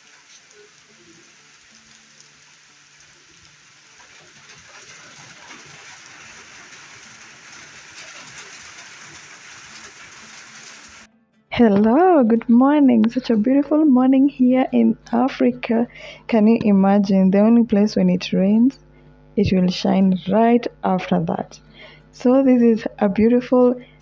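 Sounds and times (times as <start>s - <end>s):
steady rain falling: 0.0s - 11.1s.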